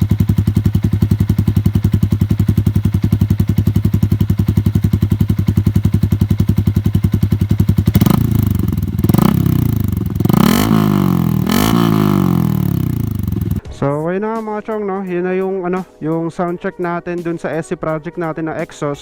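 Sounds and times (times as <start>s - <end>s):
motorcycle engine idling and revving: 0.0s - 13.6s.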